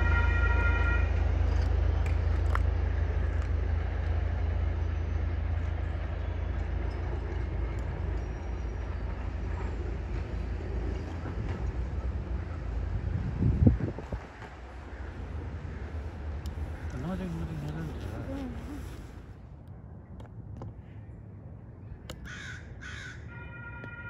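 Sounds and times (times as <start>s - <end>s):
train rumbling down track: 0.0s - 19.5s.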